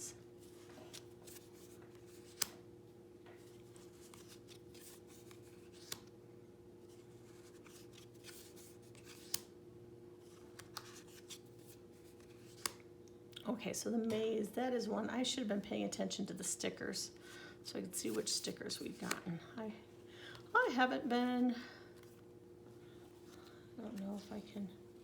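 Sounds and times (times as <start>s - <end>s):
faint hum: 0.0s - 25.0s
cards being handled: 0.4s - 2.6s, 3.3s - 6.2s, 6.8s - 9.5s, 10.2s - 12.9s, 18.0s - 19.3s
cards snapping down: 2.2s - 2.6s, 7.6s - 9.5s, 12.1s - 12.8s.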